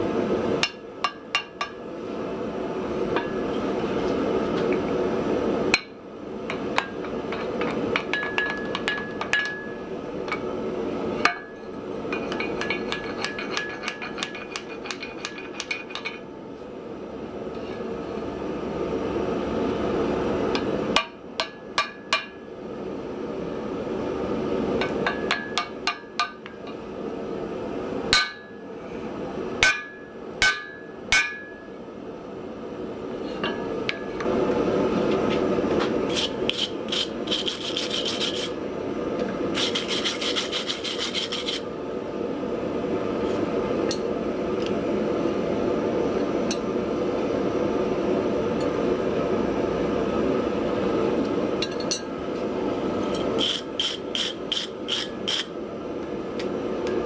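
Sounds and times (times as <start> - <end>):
hammer strikes on steel: 21.0 - 22.4, 28.2 - 28.6, 29.6 - 31.6.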